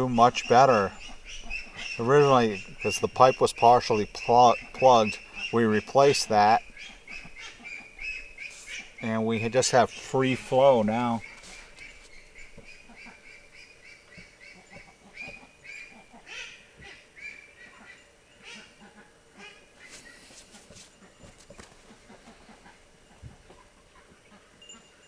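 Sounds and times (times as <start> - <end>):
birds calling in short high notes: 0.0 - 16.6.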